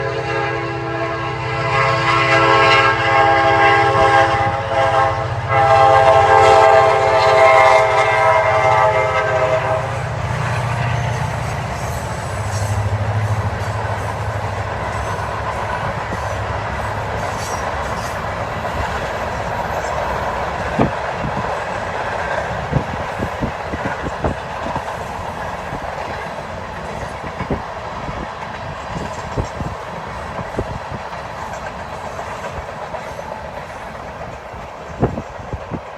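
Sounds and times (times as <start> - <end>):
locomotive multi-note horn: 0.0 - 20.4
train wheels clickety-clack: 4.0 - 35.9.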